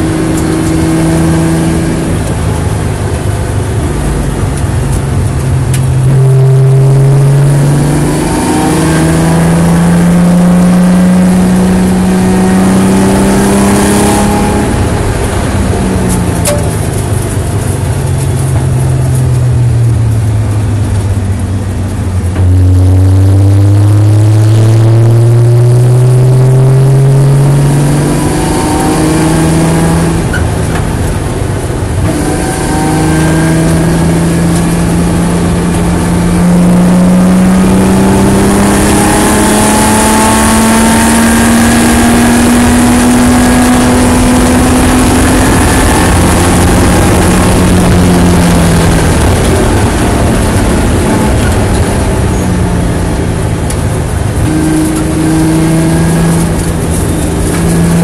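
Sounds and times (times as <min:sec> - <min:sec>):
racing car engine revving: 0:00.0 - 0:58.0
wind noise: 0:27.3 - 0:58.0.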